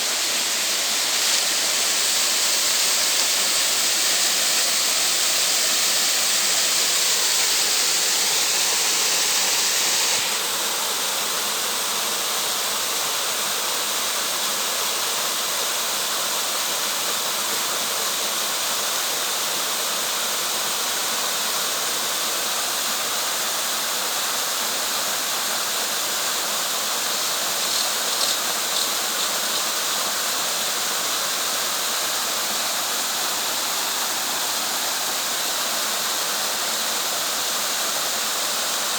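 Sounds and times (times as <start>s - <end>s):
waterfall rushing: 0.0s - 14.2s, 24.8s - 38.9s.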